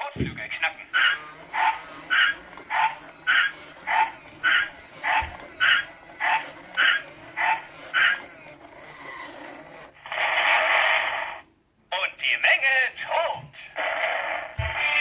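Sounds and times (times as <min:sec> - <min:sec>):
toy bark-like electronic beeps: 0:01.0 - 0:09.4.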